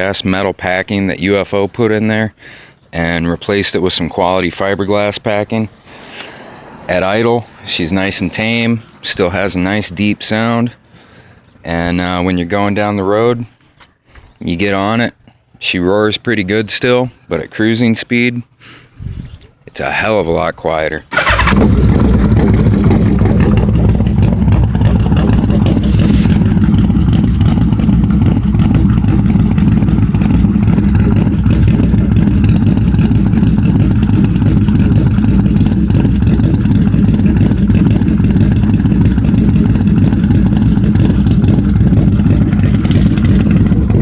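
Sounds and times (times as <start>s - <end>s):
motorcycle engine running steadily: 21.2s - 44.0s.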